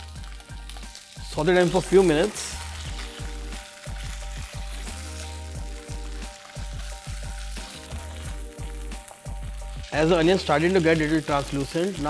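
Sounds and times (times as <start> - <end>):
background music with bass line: 0.0 - 12.0
onion sizzling in hot oil: 0.0 - 12.0
spatula stirring in pan: 1.8 - 10.0.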